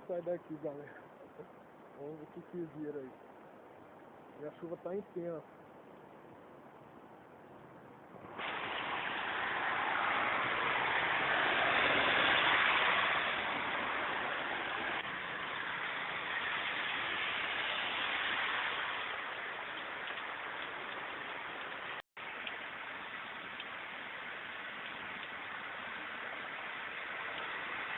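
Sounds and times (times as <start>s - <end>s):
heavy rain pouring: 8.2s - 27.9s.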